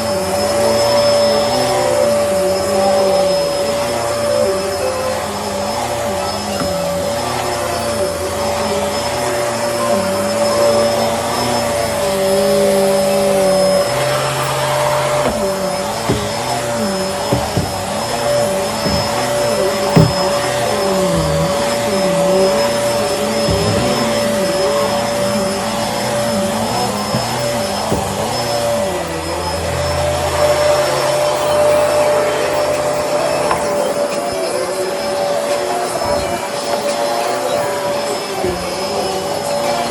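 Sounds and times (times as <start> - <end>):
vacuum cleaner whining: 0.0 - 39.9.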